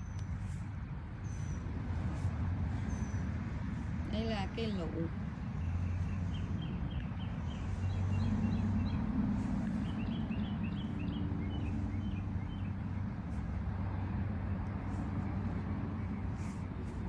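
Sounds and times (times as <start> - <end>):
small bird chirping: 1.2 - 1.7, 2.7 - 3.4, 5.4 - 13.0.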